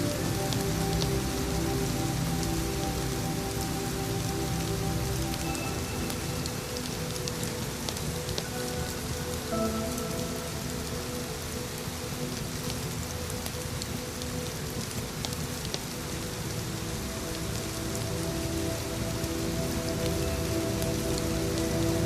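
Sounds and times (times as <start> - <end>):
ambient music pad: 0.0 - 22.0
steady rain falling: 0.0 - 22.0.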